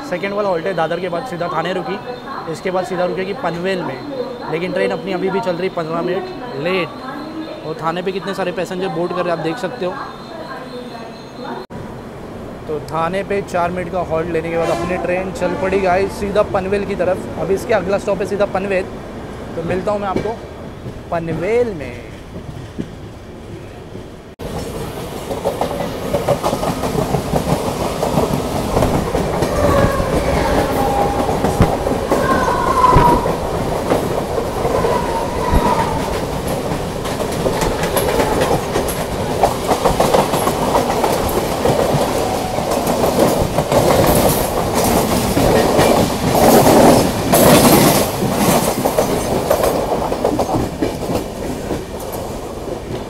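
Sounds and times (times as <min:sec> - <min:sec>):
train rushing past: 0:00.0 - 0:53.0
train wheels clacking on rails: 0:23.9 - 0:53.0
train wheel squeals: 0:29.4 - 0:33.4.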